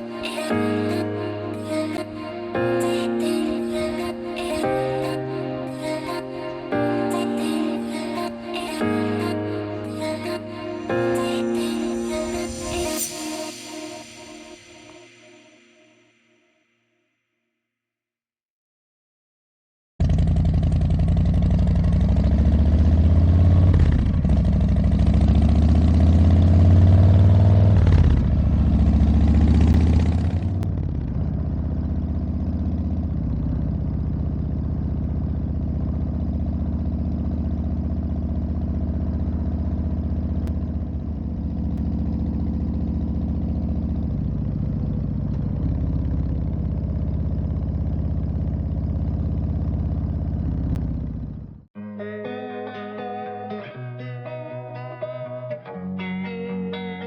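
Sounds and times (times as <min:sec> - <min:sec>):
motorcycle engine shifting up gears: 0:20.0 - 0:51.7.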